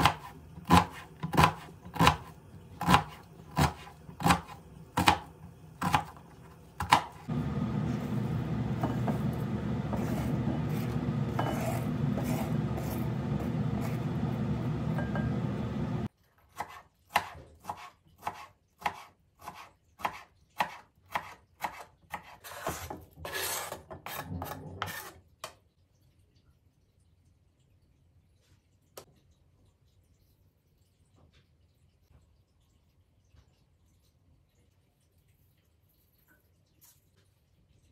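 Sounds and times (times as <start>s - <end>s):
knife chopping on cutting board: 0.0s - 6.2s, 6.8s - 15.4s, 16.6s - 25.1s.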